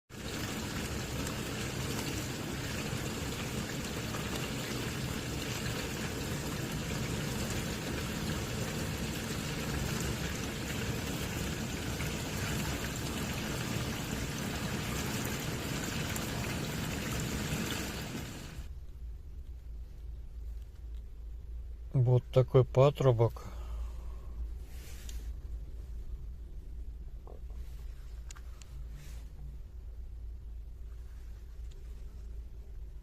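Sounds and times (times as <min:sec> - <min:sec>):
water rushing inside dishwasher: 0:00.1 - 0:18.7.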